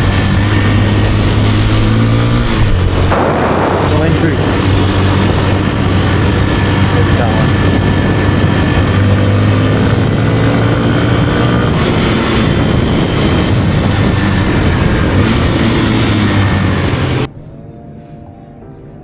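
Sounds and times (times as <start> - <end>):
dirt bike engine running: 0.0 - 17.3
wind rush on microphone: 0.0 - 17.3
faint music: 17.3 - 19.0.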